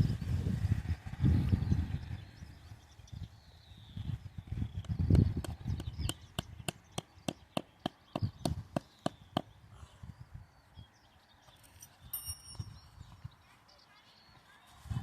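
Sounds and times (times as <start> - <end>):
wind on microphone: 0.0 - 7.0, 8.1 - 11.1, 11.9 - 13.4, 14.7 - 15.0.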